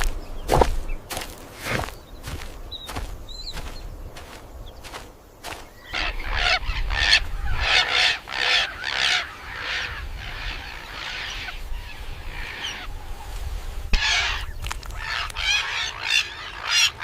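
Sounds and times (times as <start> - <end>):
harsh animal calls: 5.4 - 12.9.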